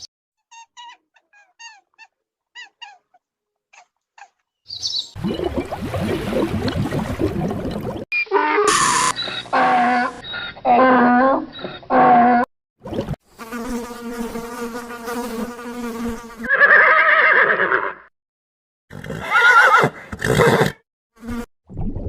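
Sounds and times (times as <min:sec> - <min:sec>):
pitched animal calls: 0:00.0 - 0:04.4, 0:08.3 - 0:12.5
wavering animal calls: 0:00.4 - 0:04.4, 0:08.2 - 0:12.4
loud harsh animal call: 0:08.3 - 0:12.4.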